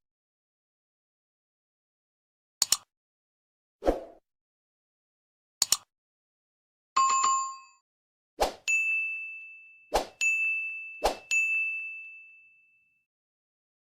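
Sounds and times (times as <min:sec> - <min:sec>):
sharp clicks: 0:02.6 - 0:02.9, 0:05.6 - 0:05.9
metallic bell ding: 0:08.7 - 0:13.0.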